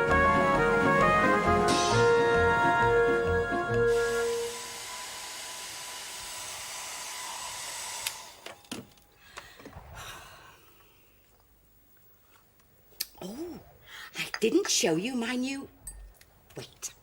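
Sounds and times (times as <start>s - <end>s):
hair dryer blowing: 3.7s - 8.4s.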